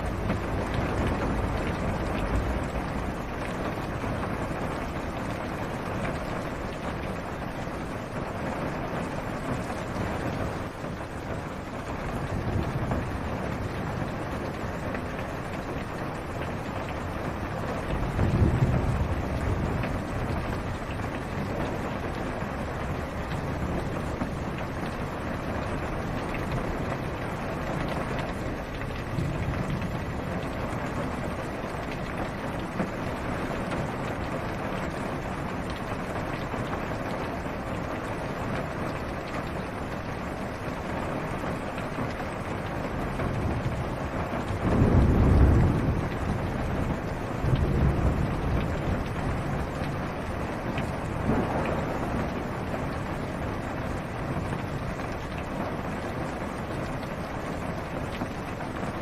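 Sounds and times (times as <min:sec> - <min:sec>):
rain on car roof: 0:00.0 - 0:59.0
thunder rolling: 0:17.8 - 0:20.8, 0:44.5 - 0:50.0, 0:51.0 - 0:53.0.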